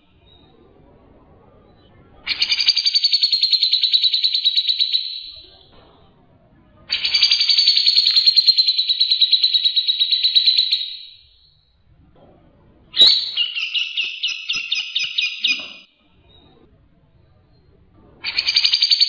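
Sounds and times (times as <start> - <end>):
songbird rattling trills: 13.0 - 15.8.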